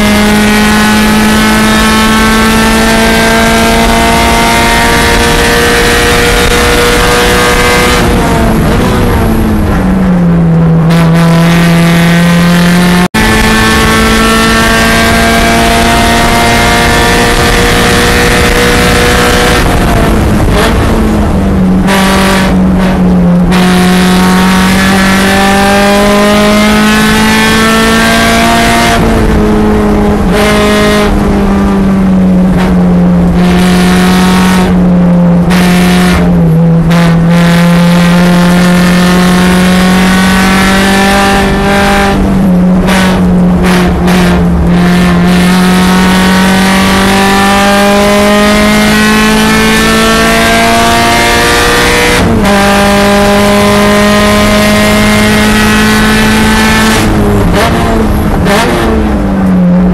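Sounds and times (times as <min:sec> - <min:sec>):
car engine running hard: 0:00.0 - 0:59.9.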